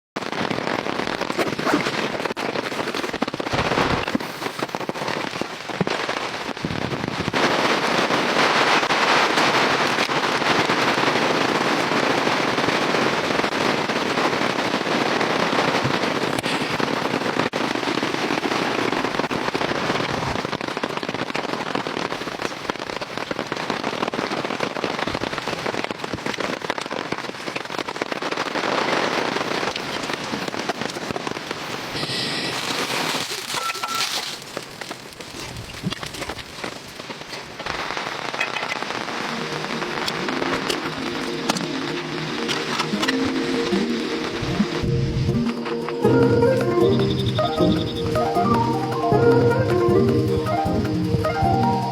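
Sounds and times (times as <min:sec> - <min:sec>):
heavy rain falling: 0:00.2 - 0:51.9.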